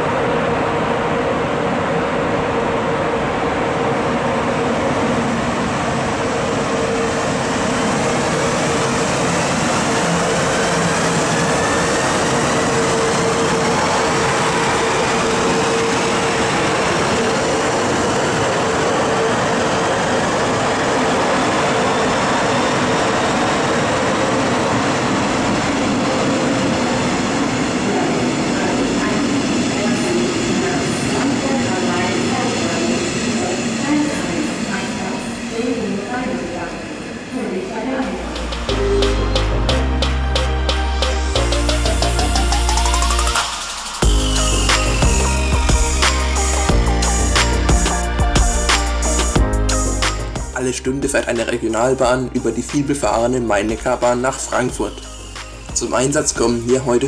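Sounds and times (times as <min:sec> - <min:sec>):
locomotive hum: 0:00.0 - 0:57.0
train wheels on rails: 0:04.8 - 0:39.6
whines rising in pitch: 0:06.4 - 0:35.6, 0:38.0 - 0:52.5, 0:53.5 - 0:57.0.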